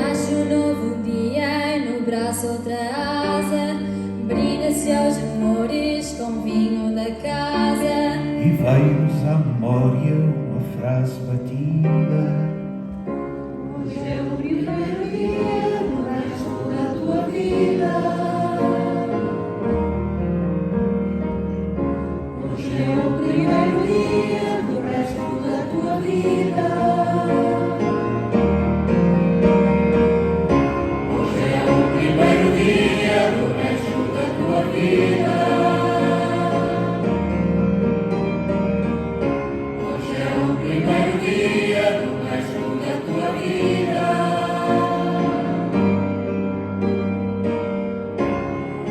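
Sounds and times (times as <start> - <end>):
choir singing: 0.0 - 1.1, 13.4 - 20.2, 22.0 - 29.3, 30.8 - 37.6, 39.5 - 46.3.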